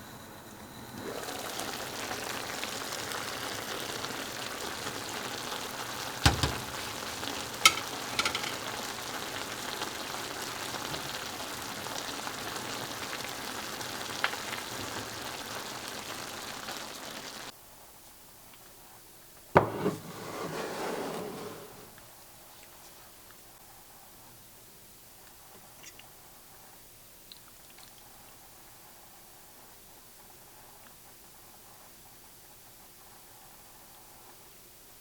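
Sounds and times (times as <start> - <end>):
food sizzling in a hot pan: 1.0 - 17.5
utensil knocking against pan: 6.3 - 8.7, 19.6 - 20.0.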